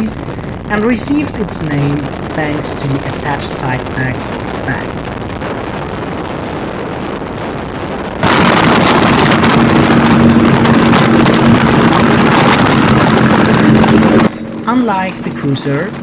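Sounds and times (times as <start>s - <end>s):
wind rush: 0.0s - 16.0s
motorcycle engine running: 8.2s - 16.0s.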